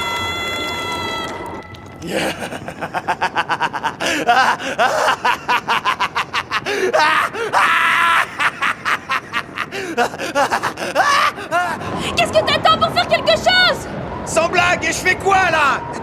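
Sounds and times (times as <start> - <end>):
held scream: 0.0 - 2.2
strained cries and groans: 0.0 - 3.0, 9.4 - 13.5.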